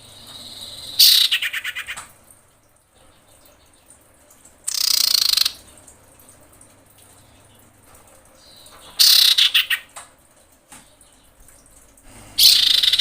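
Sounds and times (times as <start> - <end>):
bird harsh rasping call: 0.9 - 2.0, 12.4 - 13.0
bird rapid rattling trill: 4.7 - 5.6, 9.0 - 9.8, 12.4 - 13.0.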